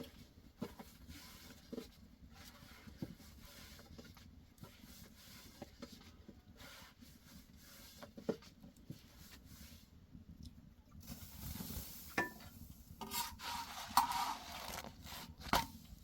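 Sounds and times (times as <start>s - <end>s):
faint rubbing and handling: 0.0s - 10.1s, 11.0s - 16.0s.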